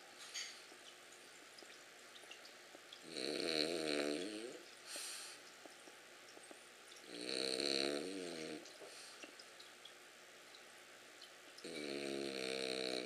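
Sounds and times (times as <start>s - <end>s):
dog snoring: 3.0s - 4.6s, 7.1s - 8.6s, 11.6s - 13.0s.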